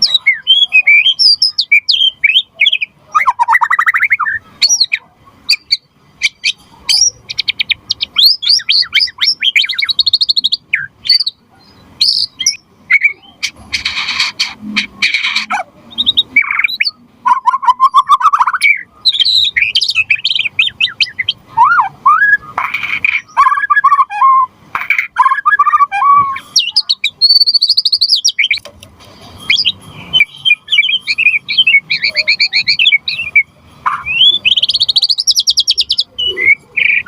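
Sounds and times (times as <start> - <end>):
songbird singing whistles and trills: 0.0 - 28.7, 29.3 - 37.0
harsh rasping bird notes: 12.2 - 35.3.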